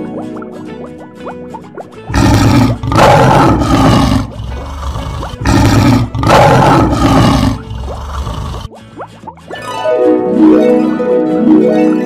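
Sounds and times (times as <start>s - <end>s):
lion roaring: 2.1s - 8.7s.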